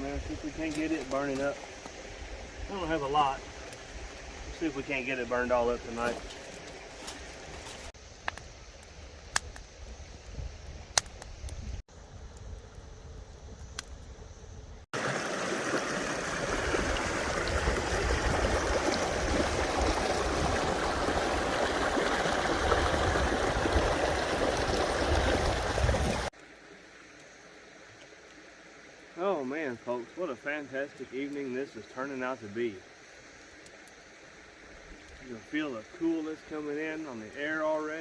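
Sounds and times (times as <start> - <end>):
creek water rushing: 0.0 - 8.0, 14.9 - 37.9
sharp snaps: 9.3 - 9.7.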